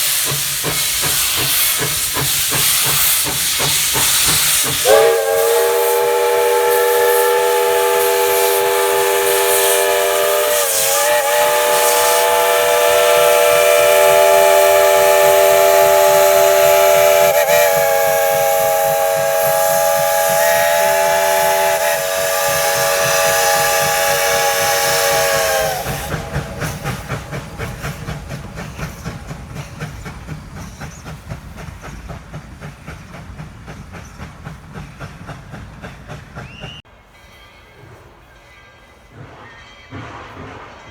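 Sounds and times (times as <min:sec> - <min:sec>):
steam locomotive whistle: 0:00.0 - 0:29.4
steam hiss: 0:00.0 - 0:40.9
train running beat: 0:00.0 - 0:40.9.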